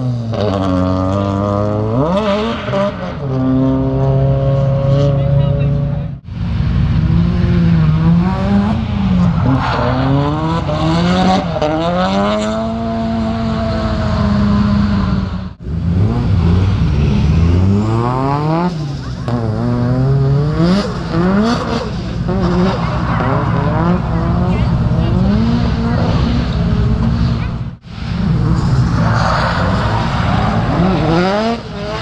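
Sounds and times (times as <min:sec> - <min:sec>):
car engine revving hard: 0:06.9 - 0:32.0.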